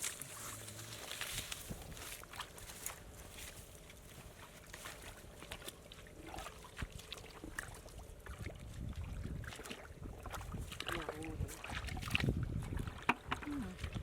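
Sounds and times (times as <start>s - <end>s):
shallow water trickling: 0.0s - 14.0s
small splashes and clicks: 3.8s - 14.0s.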